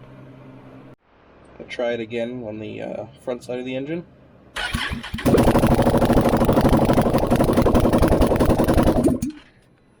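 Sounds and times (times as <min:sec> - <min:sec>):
loud engine running without exhaust: 0:04.6 - 0:09.4.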